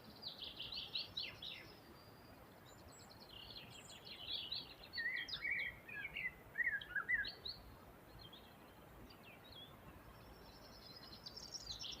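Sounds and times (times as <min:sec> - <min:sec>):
small birds singing and chirping: 0:00.0 - 0:12.0
steady background hiss: 0:00.0 - 0:12.0.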